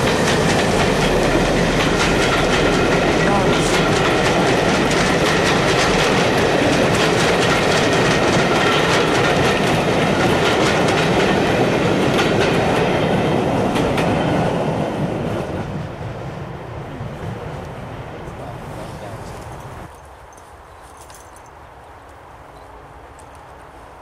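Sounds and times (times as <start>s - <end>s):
train wheels clattering over rail joints: 0.0s - 15.8s.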